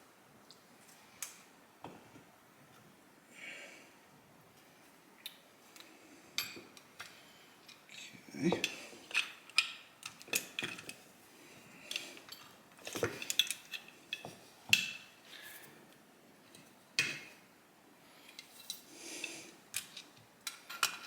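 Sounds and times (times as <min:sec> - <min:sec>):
small metal parts clinking: 0:11.9 - 0:14.3.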